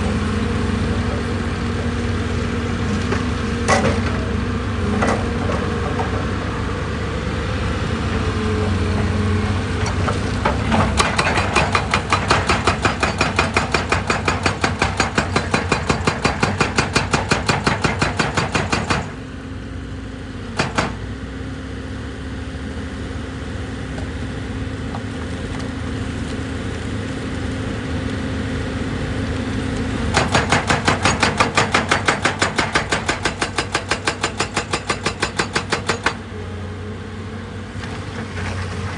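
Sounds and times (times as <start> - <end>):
diesel machinery running: 0.0 - 38.9
rapid repeated hammering: 30.2 - 36.2.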